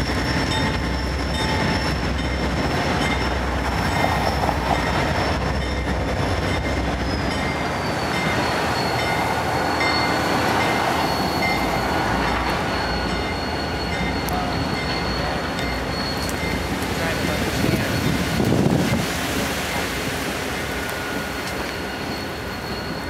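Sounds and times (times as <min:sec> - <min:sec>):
freight train rumbling past: 0:00.0 - 0:23.0
thin high squeal: 0:20.7 - 0:23.0.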